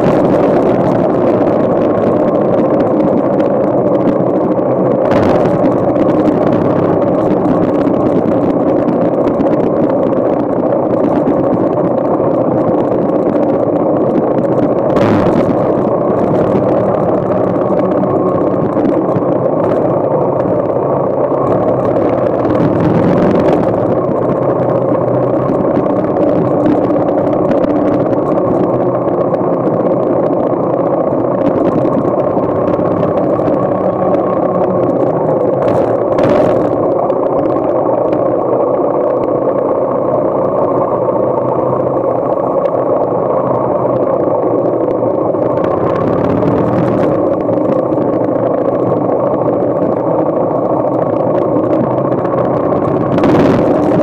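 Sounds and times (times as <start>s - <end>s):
motorcycle engine running: 14.8s - 30.3s.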